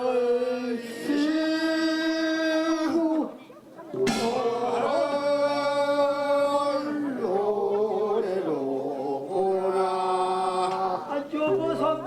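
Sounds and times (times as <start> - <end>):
man singing folk song: 4.3 - 12.0.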